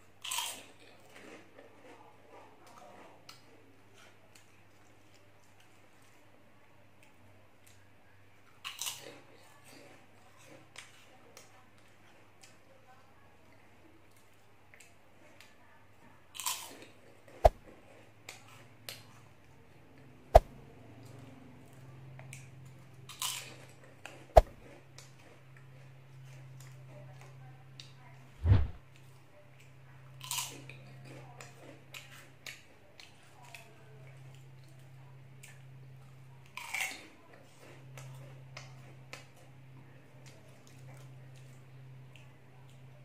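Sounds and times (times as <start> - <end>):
crunchy snacks being chewed: 0.2 - 2.0, 8.5 - 11.0, 16.4 - 17.3, 23.1 - 23.9, 30.2 - 33.7, 36.4 - 38.2.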